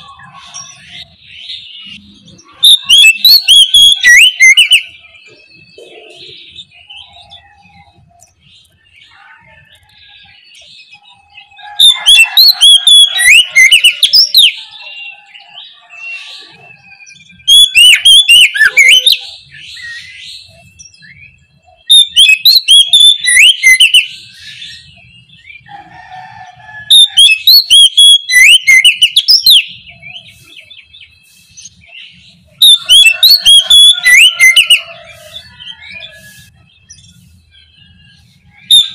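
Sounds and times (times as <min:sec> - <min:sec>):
bird singing whistled notes: 0:00.0 - 0:25.7, 0:26.9 - 0:38.9.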